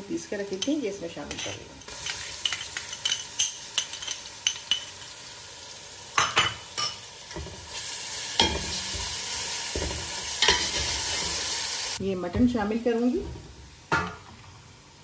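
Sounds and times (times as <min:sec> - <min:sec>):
onions sizzling in hot oil: 0:00.0 - 0:15.0
metal spatula scraping and clinking pot: 0:00.5 - 0:05.0, 0:09.7 - 0:11.4.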